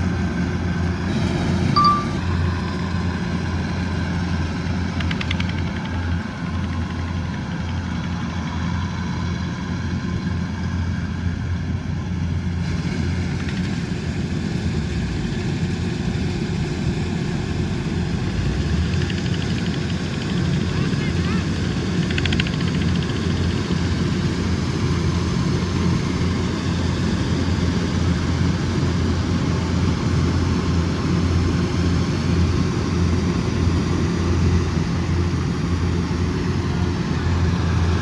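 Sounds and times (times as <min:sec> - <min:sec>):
combine harvester diesel engine: 0:00.0 - 0:38.0
high-pitched chirp: 0:01.8 - 0:02.3.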